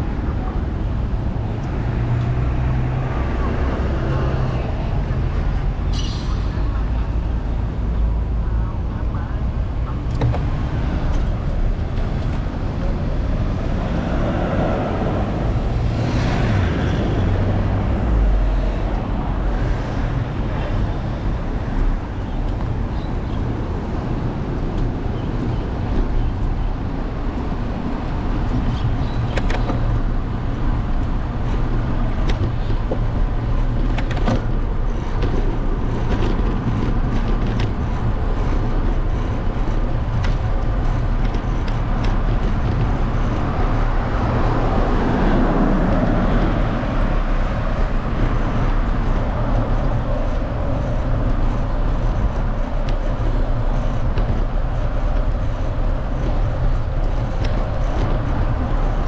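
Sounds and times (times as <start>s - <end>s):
road noise rumble: 0.0s - 59.0s
wind buffeting microphone: 0.0s - 59.0s
vehicle passing: 11.7s - 25.8s.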